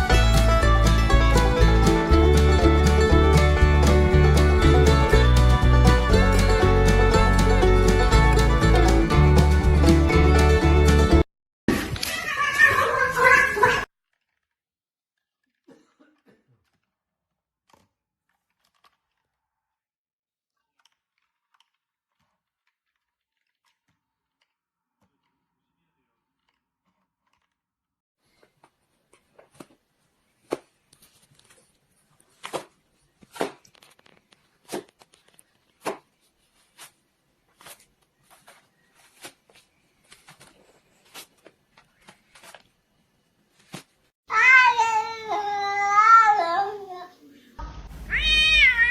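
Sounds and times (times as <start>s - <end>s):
cat meowing: 44.3s - 47.0s, 48.0s - 48.9s.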